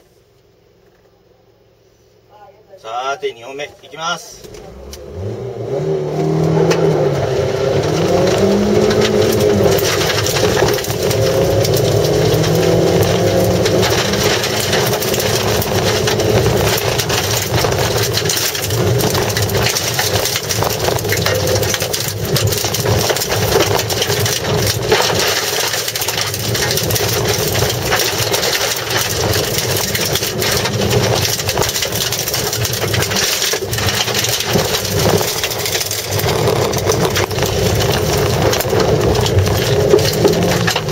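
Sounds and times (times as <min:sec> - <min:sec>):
car engine revving: 0:03.3 - 0:40.9
gravel rattling against underbody: 0:06.5 - 0:40.9.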